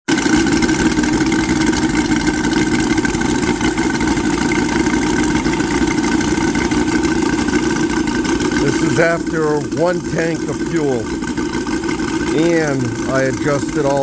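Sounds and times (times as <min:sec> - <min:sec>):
model aircraft engines running: 0:00.0 - 0:14.0.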